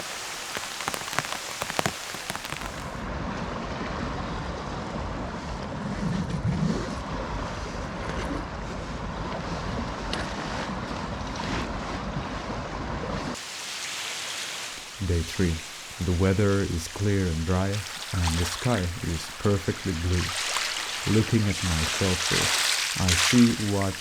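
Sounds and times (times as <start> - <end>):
waves breaking on rocks: 0.0 - 3.0, 13.4 - 24.0.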